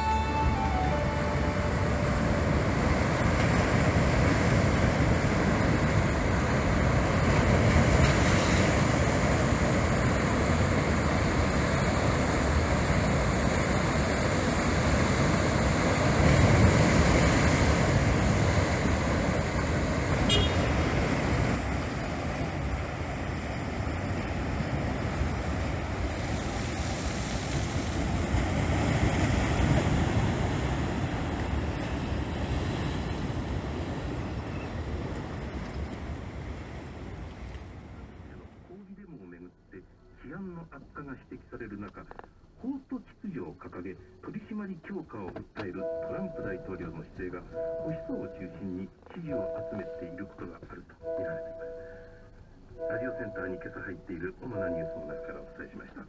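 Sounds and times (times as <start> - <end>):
sea surf breaking: 0.0 - 38.6, 52.8 - 56.0.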